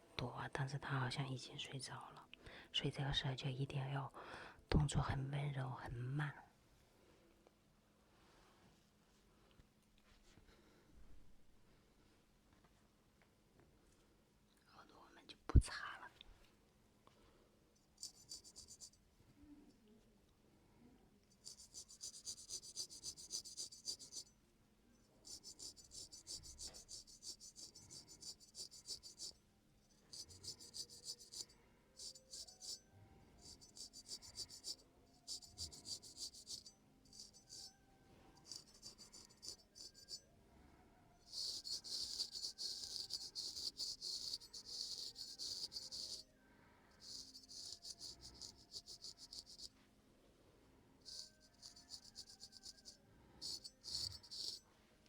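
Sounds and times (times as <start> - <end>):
razor blade scraping hair: 18.0 - 19.0, 21.4 - 24.3, 25.2 - 32.8, 33.4 - 37.8, 38.4 - 40.2, 41.3 - 46.2, 47.0 - 49.7, 51.1 - 54.6.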